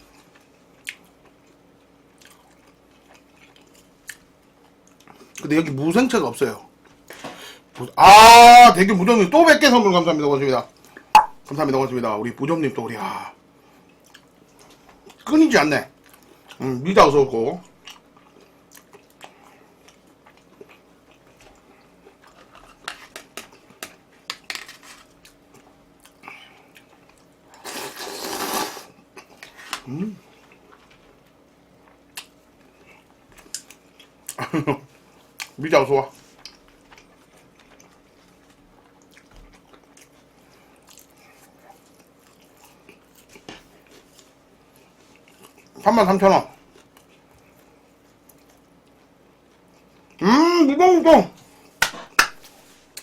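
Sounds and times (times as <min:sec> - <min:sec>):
person chewing: 0:00.1 - 0:05.4, 0:13.8 - 0:15.2, 0:17.8 - 0:24.4, 0:25.0 - 0:34.4, 0:36.2 - 0:45.8.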